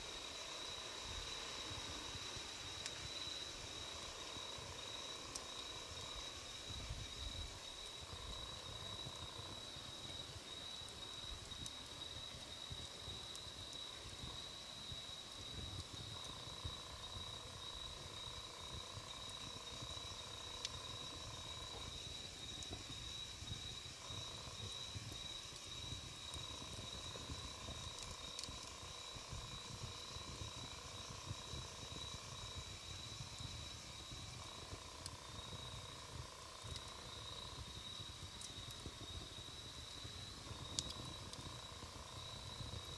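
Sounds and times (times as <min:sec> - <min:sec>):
campfire crackling and popping: 0:02.6 - 0:42.9.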